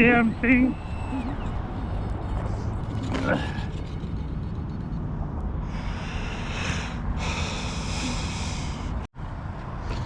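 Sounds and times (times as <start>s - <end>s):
electric motor and propeller whining: 0.0s - 5.4s.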